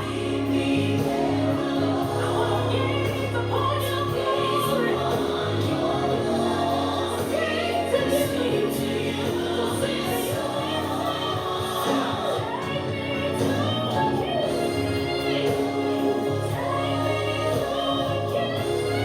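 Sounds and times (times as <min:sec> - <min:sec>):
gospel choir singing: 0:00.0 - 0:19.0
instrumental backing music: 0:00.0 - 0:19.0.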